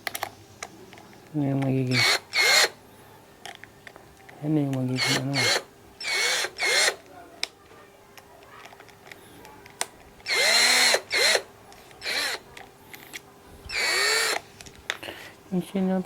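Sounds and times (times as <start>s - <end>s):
cordless drill motor whining: 1.9s - 2.8s, 4.9s - 7.0s, 10.2s - 12.5s, 13.7s - 14.4s.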